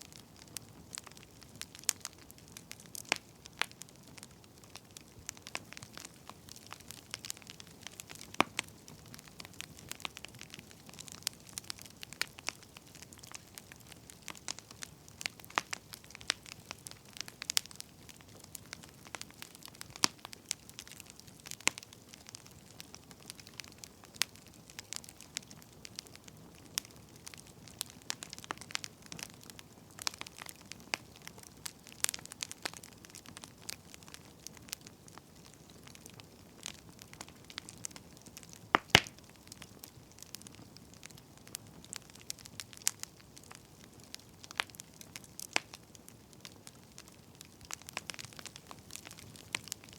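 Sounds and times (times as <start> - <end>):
faint steady hiss: 0.0 - 49.9
firewood crackling: 0.0 - 49.9.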